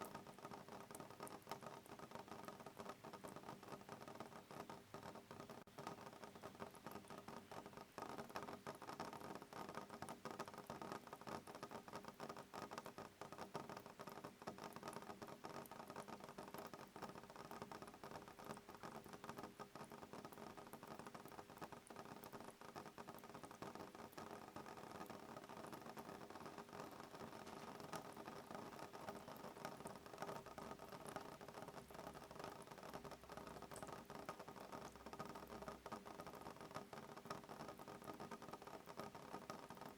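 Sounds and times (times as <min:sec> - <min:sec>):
rain pattering on a window: 0:00.0 - 0:39.9.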